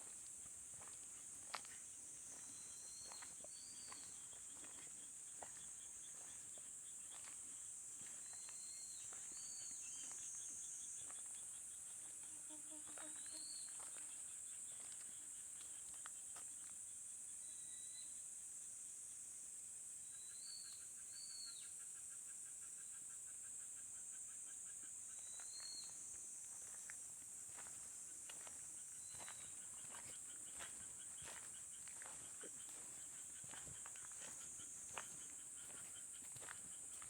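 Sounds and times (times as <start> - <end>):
faint footsteps: 0.0 - 9.4, 26.5 - 37.0
insect chirping and trills: 0.0 - 37.0.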